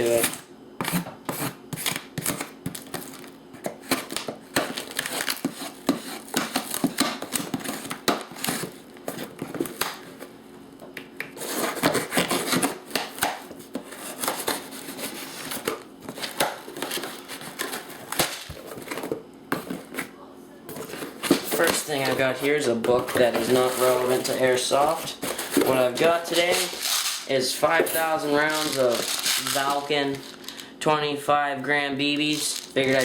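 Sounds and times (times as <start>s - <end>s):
packaging tearing: 1.8s - 5.8s, 25.3s - 27.3s, 27.9s - 30.6s, 32.3s - 33.0s
packaging crinkling and rustling: 1.9s - 10.1s, 23.1s - 30.7s, 32.1s - 33.0s.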